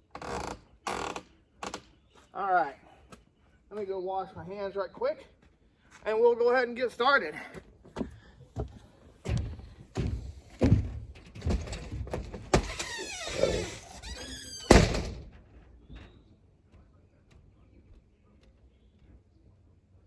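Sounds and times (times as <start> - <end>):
door slamming: 9.3 - 15.4
knocks and thuds on door: 9.3 - 15.4
door squeak: 12.5 - 15.3.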